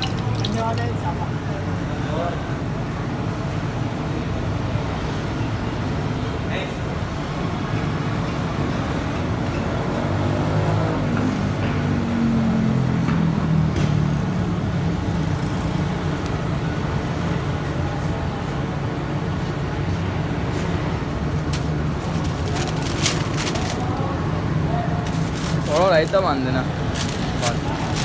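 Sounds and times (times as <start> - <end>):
street traffic rumble: 0.0 - 28.0.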